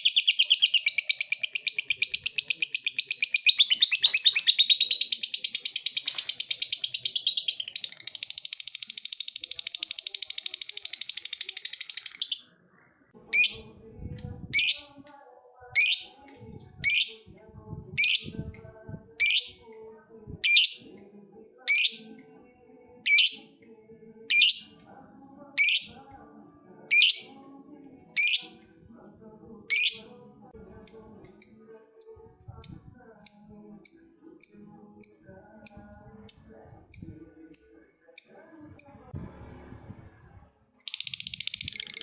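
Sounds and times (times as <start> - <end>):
lovebird chattering trill: 0.0 - 12.5, 15.8 - 16.2, 18.0 - 18.4, 19.2 - 19.6, 20.4 - 20.8, 21.7 - 22.0, 23.1 - 23.4, 28.2 - 28.6.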